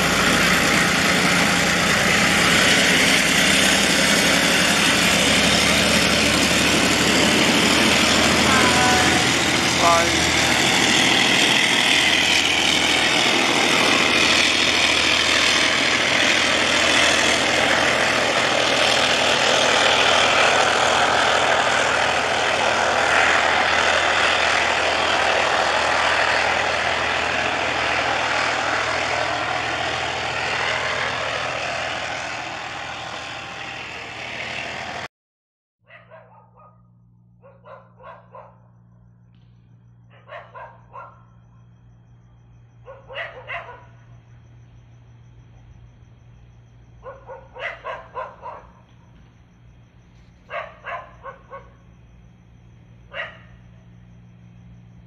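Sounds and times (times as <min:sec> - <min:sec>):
train wheel and rail noise: 0:00.0 - 0:35.1, 0:39.3 - 0:55.0
dog barking: 0:35.9 - 0:38.7, 0:40.1 - 0:41.3, 0:42.9 - 0:44.0, 0:47.0 - 0:48.8, 0:50.5 - 0:51.8, 0:53.1 - 0:53.5.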